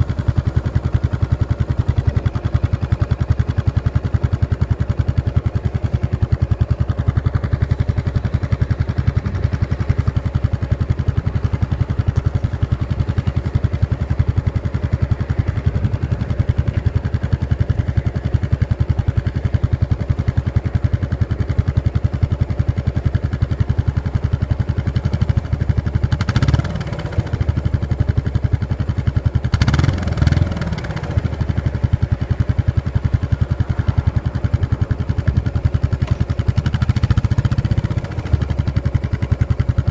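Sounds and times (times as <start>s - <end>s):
motorcycle exhaust while riding: 0.0s - 39.9s.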